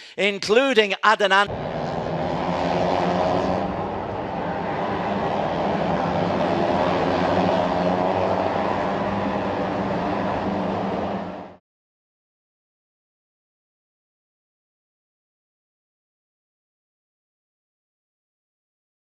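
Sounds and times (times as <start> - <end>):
racing motorcycle engines droning: 1.5 - 11.6.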